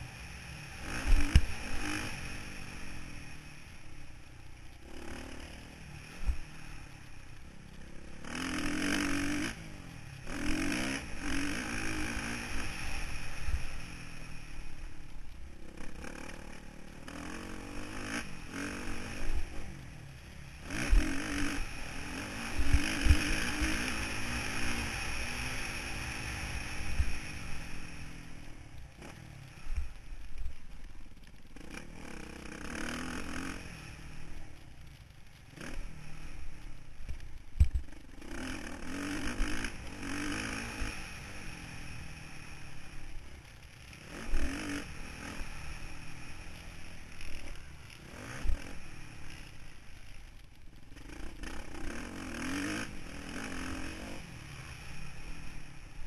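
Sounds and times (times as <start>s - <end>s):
motocross bike engine revving: 0.0s - 4.1s, 4.8s - 56.0s.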